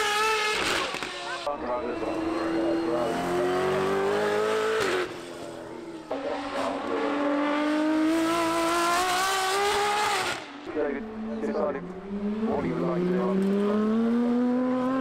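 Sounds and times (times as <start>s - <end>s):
supercar engines accelerating past: 0.0s - 15.0s.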